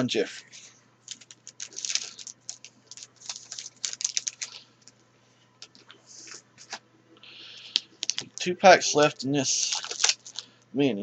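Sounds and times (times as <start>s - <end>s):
cards flipping clicks and rustles: 1.1s - 5.0s, 5.6s - 6.8s, 7.7s - 8.5s, 9.5s - 10.5s.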